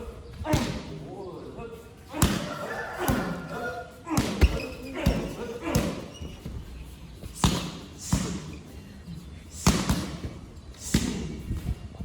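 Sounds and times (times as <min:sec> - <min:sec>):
strikes landing with smacks: 0:09.6 - 0:11.3.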